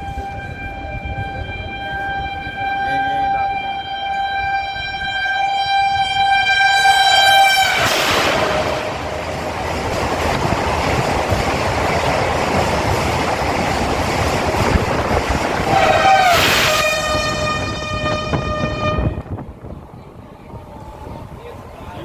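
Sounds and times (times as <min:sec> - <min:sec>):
train horn: 0:00.0 - 0:09.3, 0:15.5 - 0:19.4
train rushing past: 0:00.0 - 0:22.0.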